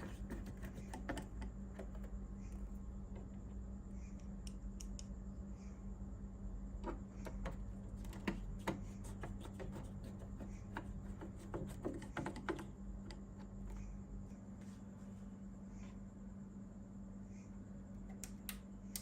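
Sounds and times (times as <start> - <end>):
small parts clicking and tapping: 18.1 - 19.0.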